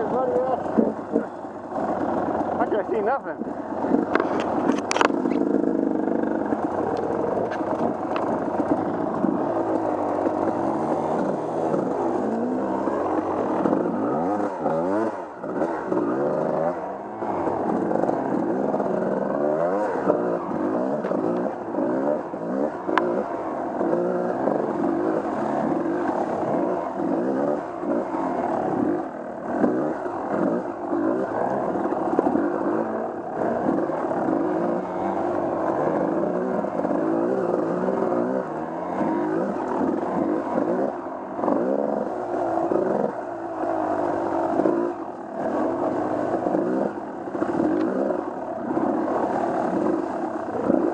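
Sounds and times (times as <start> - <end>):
off-road engine revving: 0.0 - 50.9.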